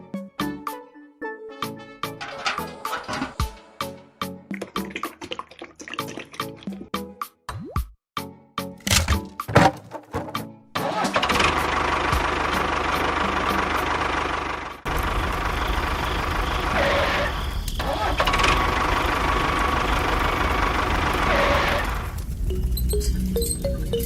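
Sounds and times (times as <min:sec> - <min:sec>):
small engine rattling: 0:02.2 - 0:03.6, 0:08.9 - 0:24.0.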